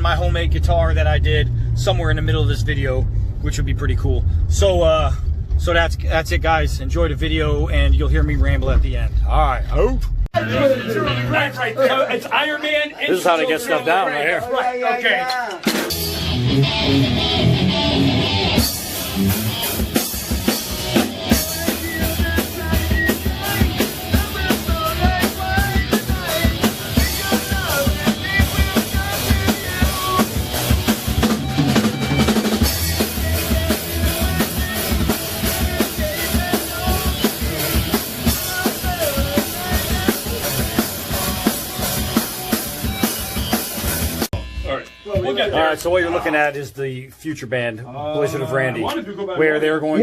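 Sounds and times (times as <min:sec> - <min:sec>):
rock band playing: 0:15.6 - 0:45.3.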